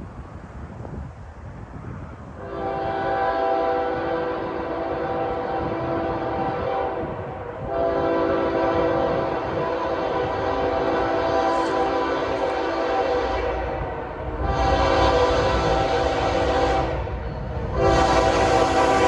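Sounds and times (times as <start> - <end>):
train horn blasts: 2.4 - 19.0
low rumble: 13.2 - 19.0.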